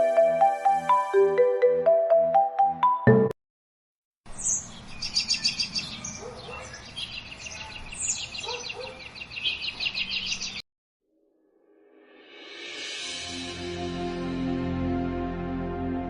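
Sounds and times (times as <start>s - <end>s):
small birds chirping and trilling: 4.3s - 10.6s.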